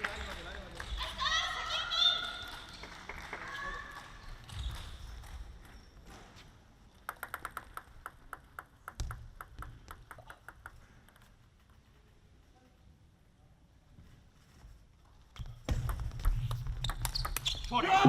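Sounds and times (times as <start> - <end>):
table tennis ball bouncing: 6.9 - 11.4, 15.4 - 17.7.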